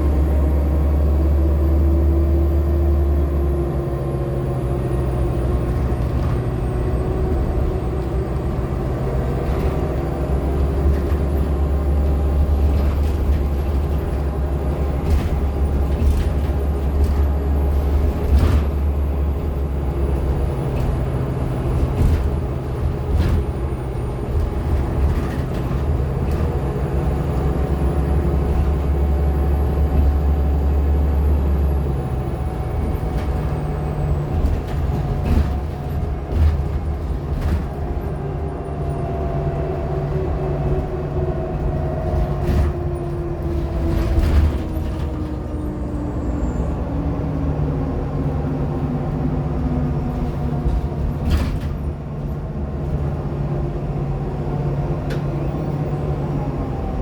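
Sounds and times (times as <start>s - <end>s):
bus drivetrain hum: 0.0s - 57.0s
rattles and knocks: 12.3s - 27.5s.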